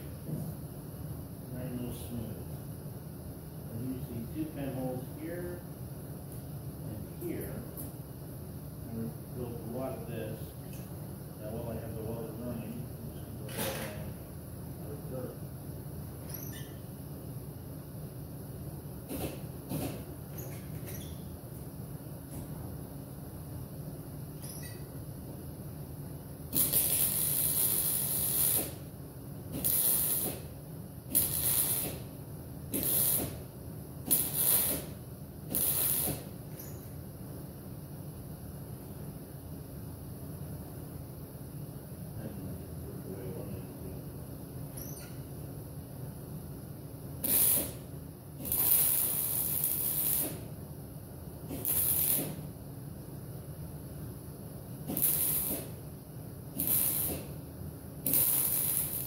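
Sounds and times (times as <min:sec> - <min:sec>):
low steady hum: 0:00.0 - 0:26.5, 0:36.2 - 0:47.2
welding crackling hiss: 0:03.6 - 0:05.6, 0:06.2 - 0:08.0, 0:19.0 - 0:21.2, 0:26.4 - 0:37.0, 0:47.2 - 0:50.6, 0:51.4 - 0:52.6, 0:54.8 - 0:55.9, 0:56.5 - 0:59.0.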